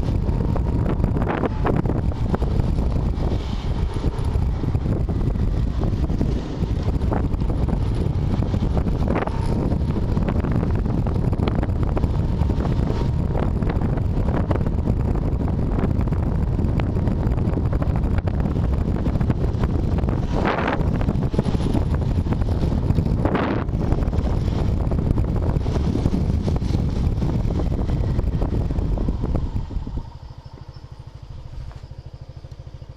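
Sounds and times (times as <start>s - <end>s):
vehicle rumble: 0.0s - 32.9s
wind noise on microphone: 0.0s - 32.9s
light ticks: 31.6s - 32.7s.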